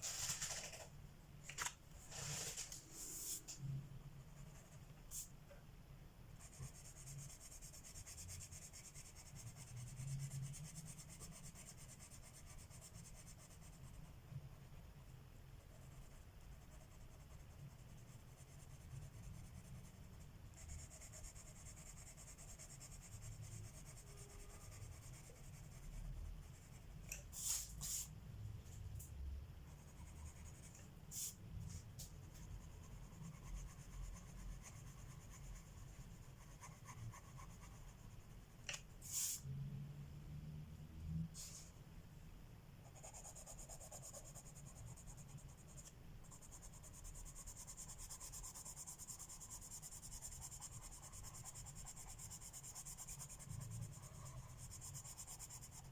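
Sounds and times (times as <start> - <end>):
pencil scratching on paper: 6.4 - 14.1, 15.6 - 28.1, 29.7 - 31.4, 32.3 - 38.2, 42.8 - 55.9.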